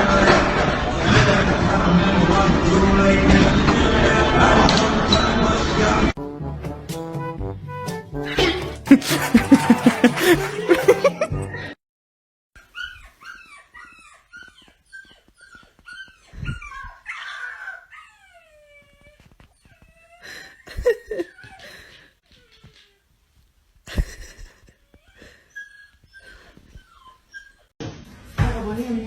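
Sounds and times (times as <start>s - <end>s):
music: 6.2s - 11.8s
dog yelping: 12.6s - 23.0s, 24.8s - 27.7s
dog whimpering and yipping: 12.6s - 23.1s, 24.8s - 27.7s
dog whining: 12.6s - 23.1s, 24.8s - 27.7s.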